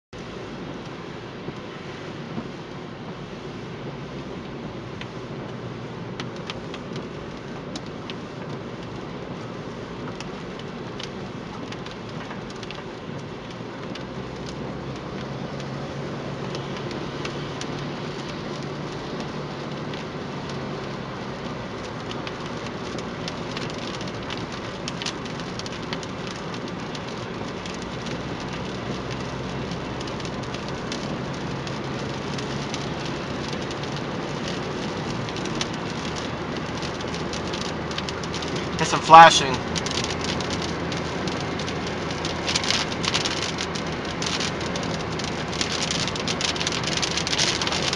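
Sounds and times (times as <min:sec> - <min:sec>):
rain hiss: 0:00.2 - 0:47.9
raindrops tapping hard surface: 0:04.6 - 0:47.9.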